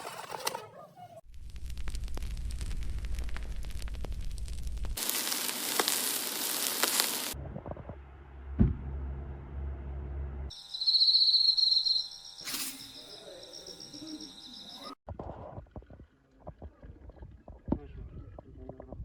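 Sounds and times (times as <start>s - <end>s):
low rumbling: 1.3s - 5.0s
high pulsing trill: 10.5s - 15.0s.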